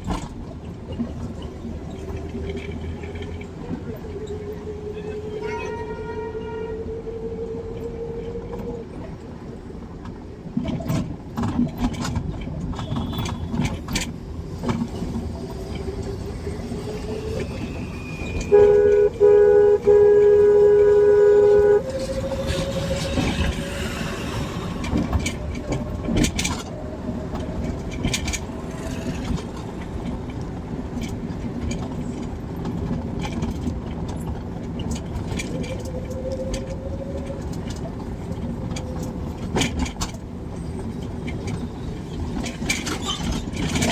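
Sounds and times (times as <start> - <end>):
car engine and road noise: 0.0 - 43.9
vehicle horn honking: 12.8 - 13.7, 18.4 - 23.6.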